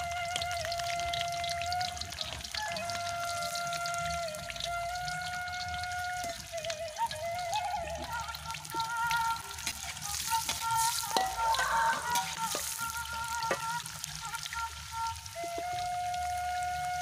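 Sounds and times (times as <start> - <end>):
food sizzling in hot oil: 0.0 - 17.0
metal spatula scraping a pan: 9.6 - 13.6.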